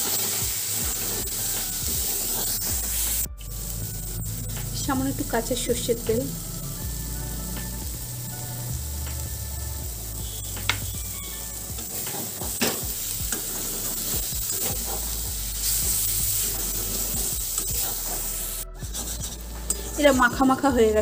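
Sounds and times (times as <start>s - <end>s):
metal spatula scraping a pan: 0.0s - 3.0s, 11.8s - 20.4s
food sizzling in a pan: 0.0s - 21.0s.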